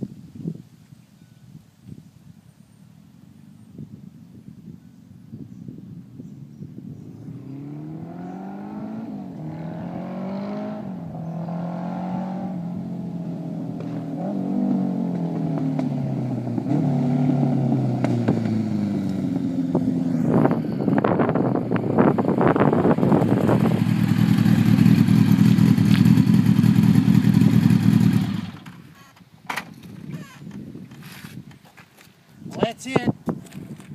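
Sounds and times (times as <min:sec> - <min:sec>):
motorcycle engine revving: 0:07.2 - 0:29.0.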